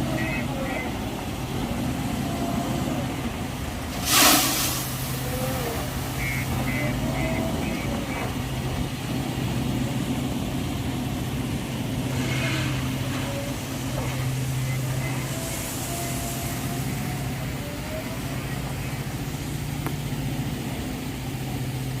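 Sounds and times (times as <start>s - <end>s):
heavy diesel engine running: 0.0s - 22.0s
faint high whining tones: 12.2s - 20.0s.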